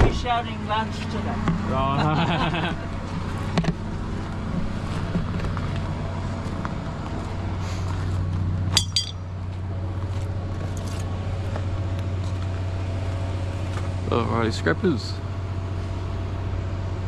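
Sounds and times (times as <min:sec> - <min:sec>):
car engine drone: 0:00.0 - 0:17.0
road noise: 0:00.0 - 0:17.0
sharp ringing clink: 0:08.8 - 0:09.3.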